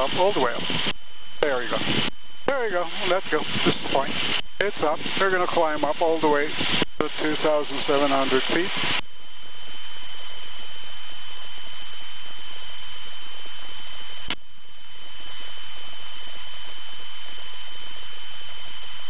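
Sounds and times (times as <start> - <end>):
intercom hiss: 0.0 - 9.0.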